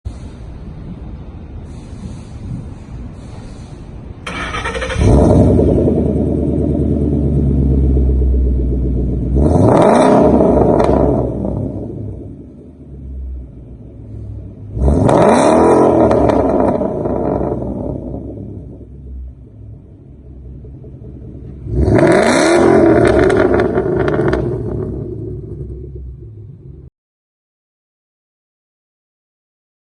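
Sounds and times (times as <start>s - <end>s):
exhaust crackles: 1.6s - 26.9s
car engine starting and idling: 3.2s - 26.9s.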